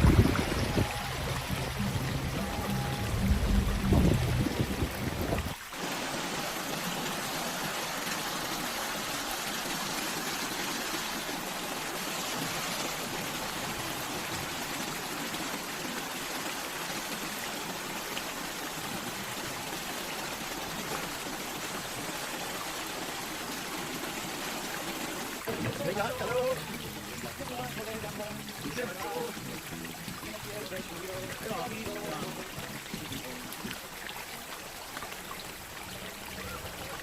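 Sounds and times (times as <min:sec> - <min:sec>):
floodwater rushing: 0:00.0 - 0:37.0
background music: 0:00.2 - 0:04.7, 0:25.5 - 0:33.5.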